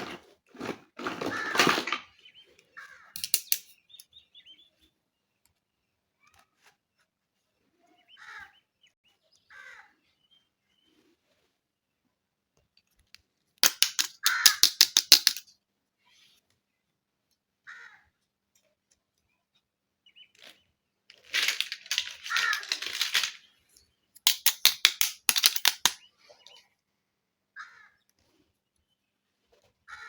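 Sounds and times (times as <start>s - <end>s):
plastic packaging clicking and crackling: 0.0s - 2.0s, 13.6s - 15.4s, 21.1s - 23.4s, 24.3s - 26.0s.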